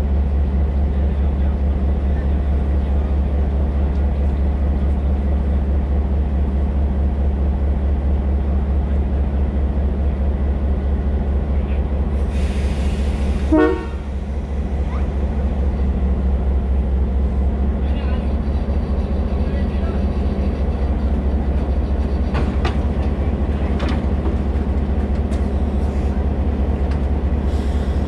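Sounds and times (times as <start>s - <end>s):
train rumbling: 0.0s - 28.0s
rush of hiss: 12.2s - 13.5s
train horn toot: 13.5s - 14.1s.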